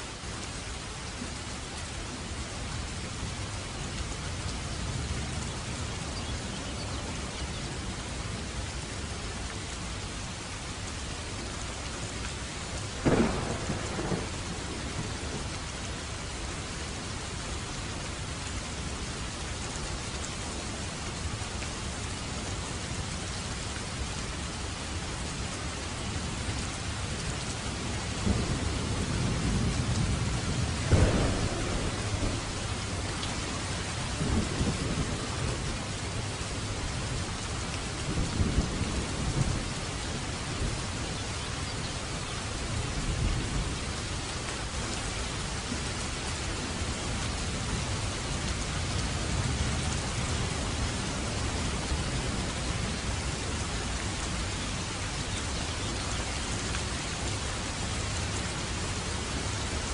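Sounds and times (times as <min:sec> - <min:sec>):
steady rain falling: 0:00.0 - 0:59.9
thunder rumbling: 0:13.0 - 0:15.5, 0:28.2 - 0:40.9.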